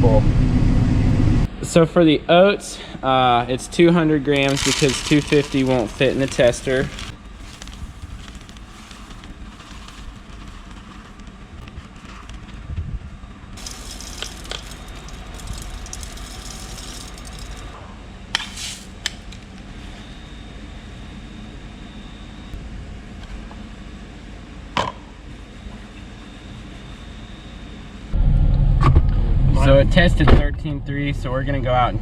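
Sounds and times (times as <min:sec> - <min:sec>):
low background hum: 0:00.0 - 0:32.0
grain rustling: 0:03.7 - 0:12.6, 0:13.6 - 0:17.8.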